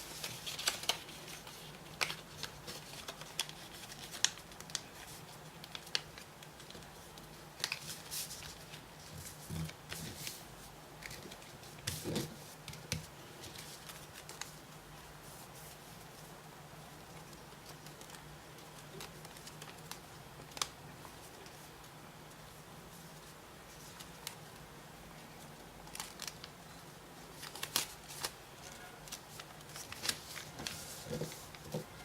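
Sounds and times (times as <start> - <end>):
paper being folded: 0.0 - 10.4, 11.0 - 16.2, 17.2 - 21.7, 25.6 - 26.5, 27.2 - 32.0.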